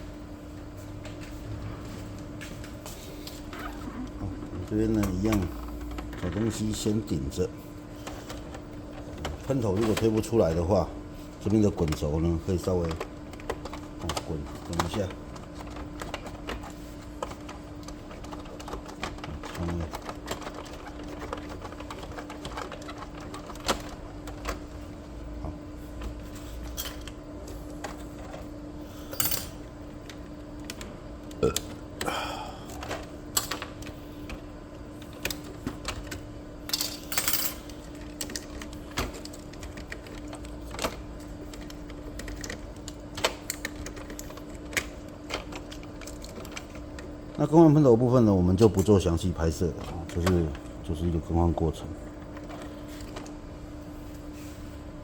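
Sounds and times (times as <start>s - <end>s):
steady hum: 0.0s - 55.0s
plastic parts clicking and scraping: 11.5s - 24.6s.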